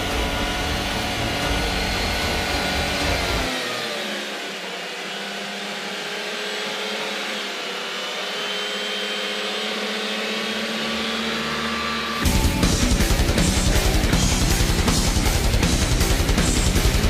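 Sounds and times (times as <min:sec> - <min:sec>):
car engine whining at high revs: 0:00.0 - 0:17.0.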